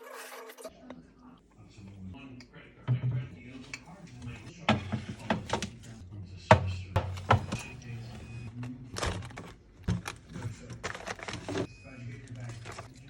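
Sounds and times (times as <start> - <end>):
items knocking and clacking: 4.7 - 5.8, 6.5 - 7.8, 9.0 - 11.7.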